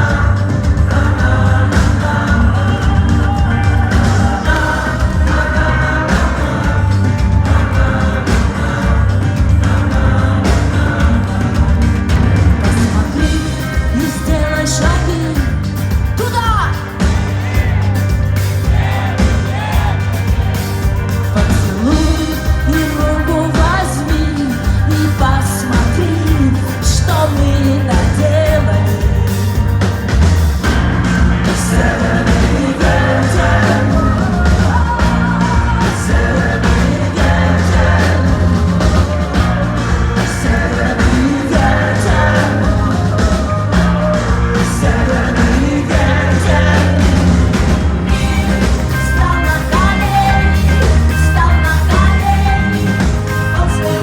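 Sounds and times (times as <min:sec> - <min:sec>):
live rock-pop band playing: 0:00.0 - 0:54.0
woman singing: 0:12.6 - 0:17.7, 0:21.3 - 0:29.4, 0:31.6 - 0:47.4, 0:48.1 - 0:54.0.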